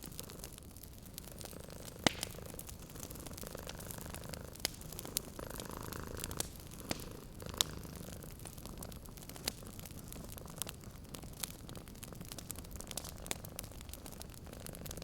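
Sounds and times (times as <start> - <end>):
sharp pops from fire: 0.0 - 15.0
wood fire crackling: 0.0 - 15.0
cat purring: 0.1 - 11.6.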